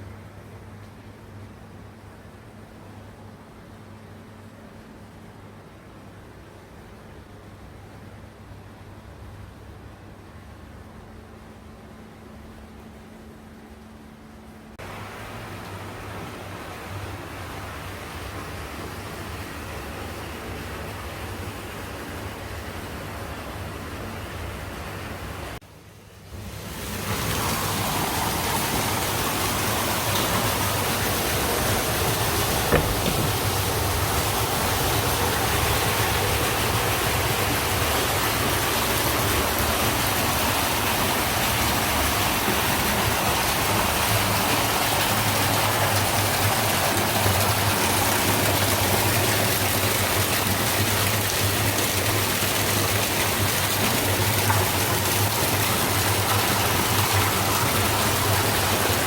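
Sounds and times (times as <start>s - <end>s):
water pouring into a bath: 26.5s - 59.0s.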